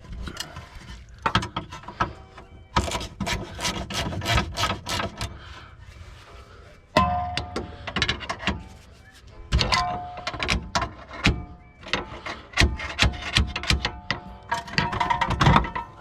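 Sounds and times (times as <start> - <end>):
hand tools clanking on metal: 7.0 - 8.7, 9.6 - 16.0.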